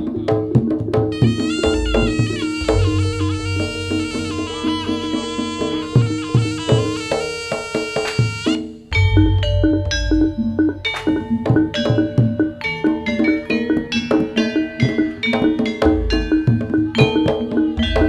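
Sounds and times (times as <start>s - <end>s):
reed wind instrument melody: 0.0s - 15.4s
hand drum strokes: 0.0s - 18.0s
metallophone tones: 1.1s - 18.0s.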